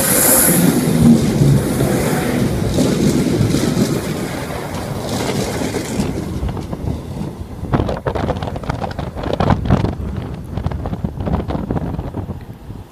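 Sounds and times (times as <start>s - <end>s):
diesel train pulling away: 0.0s - 9.3s
wind buffeting microphone: 0.0s - 12.9s.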